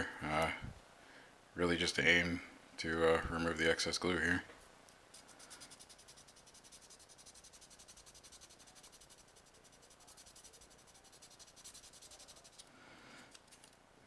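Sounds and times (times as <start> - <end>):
sandpaper rubbing on plastic: 5.2 - 12.7.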